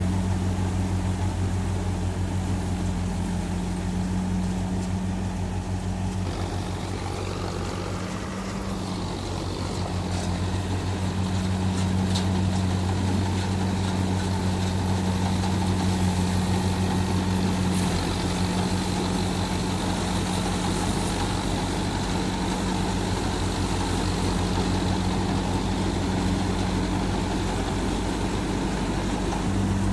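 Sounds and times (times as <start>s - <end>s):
harvesting machine engine humming: 0.0s - 29.9s.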